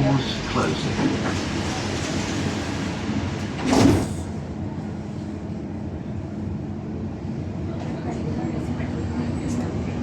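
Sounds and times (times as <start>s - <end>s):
train doors sliding shut: 1.0s - 4.4s.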